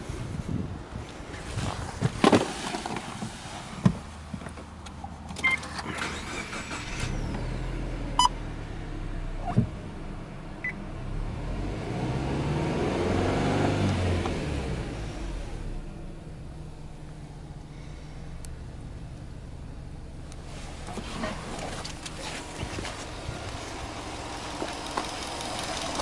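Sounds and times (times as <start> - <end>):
car engine starting and running: 1.3 - 26.0
ignition clicks and chimes: 5.3 - 7.4.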